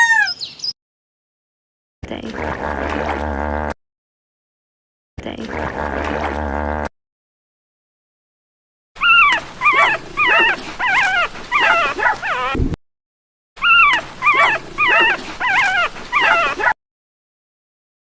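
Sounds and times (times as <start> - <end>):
dog whining and yelping: 0.0 - 0.4, 9.0 - 12.6, 13.6 - 16.8.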